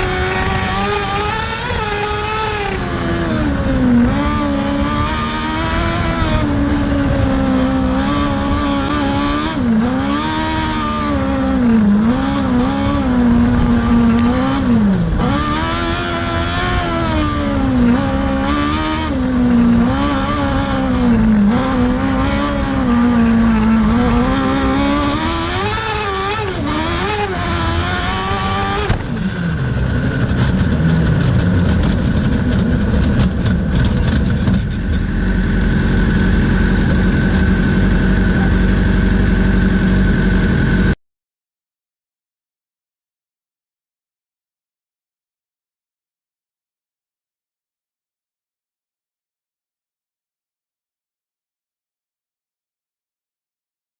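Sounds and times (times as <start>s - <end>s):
kart engine revving: 0.0s - 41.0s.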